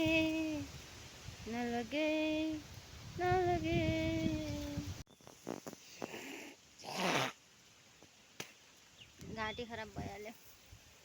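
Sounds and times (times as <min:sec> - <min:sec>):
woman singing unaccompanied: 0:00.0 - 0:00.8, 0:01.4 - 0:05.0.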